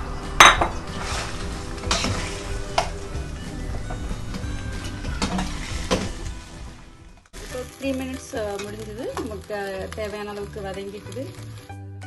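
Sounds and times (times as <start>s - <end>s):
chicken sizzling in hot oil: 0.0s - 3.2s, 4.3s - 12.0s
faint background music: 0.0s - 12.0s.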